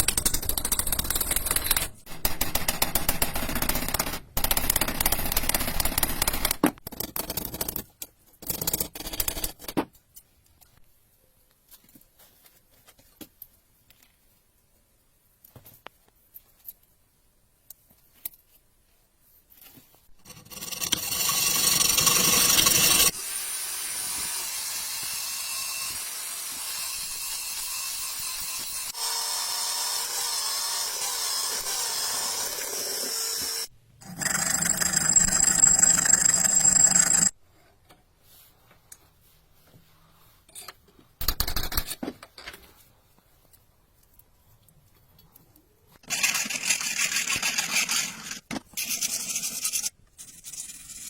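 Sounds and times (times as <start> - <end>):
power tool grinding steel: 20.3 - 34.4.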